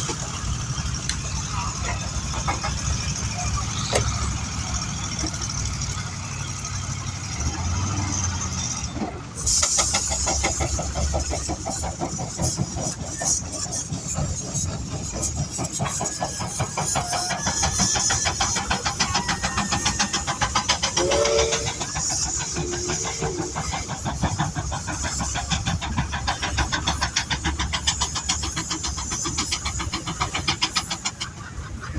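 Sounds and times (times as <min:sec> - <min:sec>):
steam engine chuffing: 0:00.0 - 0:31.9
steam hissing: 0:00.0 - 0:31.9.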